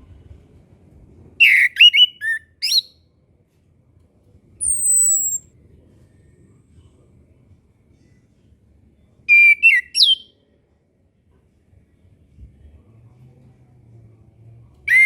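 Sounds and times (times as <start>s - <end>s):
thrush whistling song: 1.4s - 3.0s, 4.6s - 5.5s, 9.3s - 10.3s.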